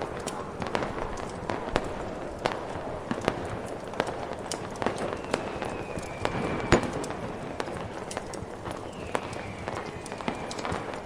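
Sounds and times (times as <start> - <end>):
fireworks popping and crackling: 0.0 - 11.0
snowstorm wind: 0.0 - 11.0
falling firework whistle: 4.8 - 11.0.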